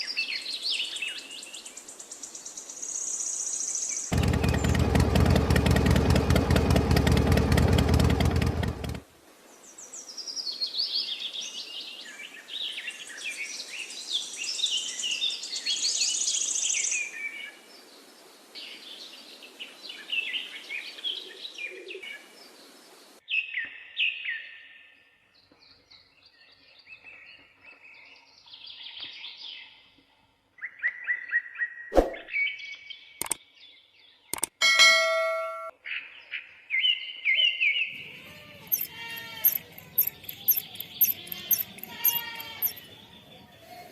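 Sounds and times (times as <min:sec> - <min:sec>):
small birds chirping: 0:00.4 - 0:08.9, 0:37.8 - 0:43.9
sharp click: 0:34.4 - 0:34.6, 0:38.7 - 0:42.8.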